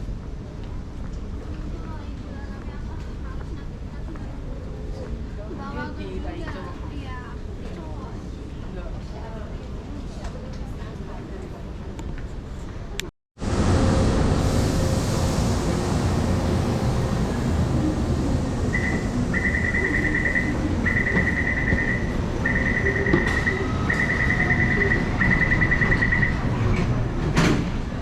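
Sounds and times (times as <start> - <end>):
rumble of busy public place: 0.0 - 28.0
rapid electronic warning beeping: 18.8 - 26.4.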